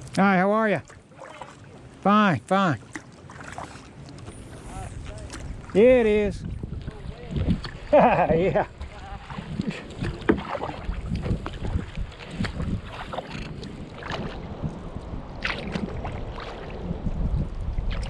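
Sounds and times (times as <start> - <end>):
kayak paddle splashing in water: 0.8 - 2.1, 2.7 - 17.2
wind buffeting microphone: 4.2 - 18.0.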